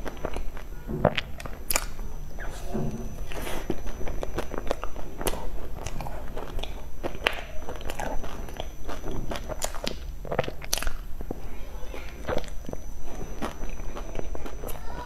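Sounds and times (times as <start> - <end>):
chewing soft cake: 0.0 - 15.0.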